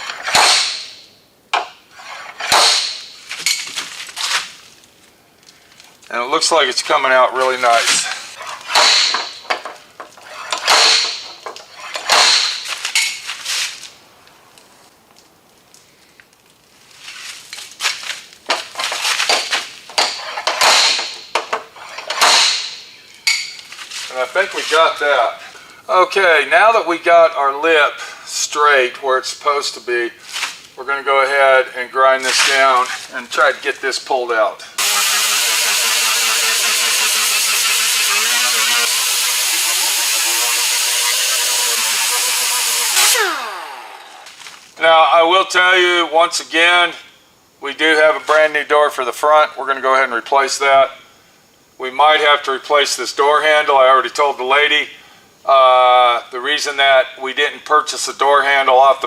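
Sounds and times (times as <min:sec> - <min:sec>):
metal clanks and scrapes: 0:00.0 - 0:01.0, 0:01.9 - 0:04.4, 0:07.8 - 0:13.8, 0:18.5 - 0:24.1
sharp knocks: 0:00.2 - 0:01.8, 0:02.4 - 0:03.1, 0:08.7 - 0:09.8, 0:10.6 - 0:12.7, 0:19.3 - 0:23.4
power grinder grinding metal: 0:34.8 - 0:44.4.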